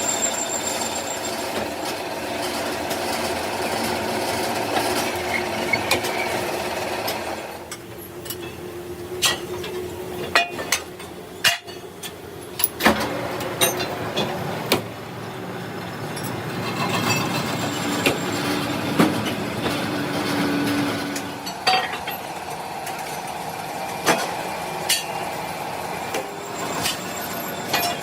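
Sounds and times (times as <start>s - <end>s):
workshop machinery running: 0.0s - 28.0s
metal clanks and knocks: 16.1s - 22.5s.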